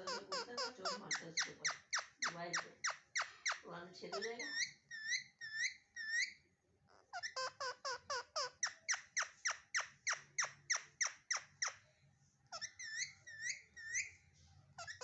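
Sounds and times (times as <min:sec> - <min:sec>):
parrot chirps: 0:00.0 - 0:11.9, 0:12.5 - 0:14.2, 0:14.8 - 0:15.0
parrot whistling calls: 0:12.6 - 0:14.1.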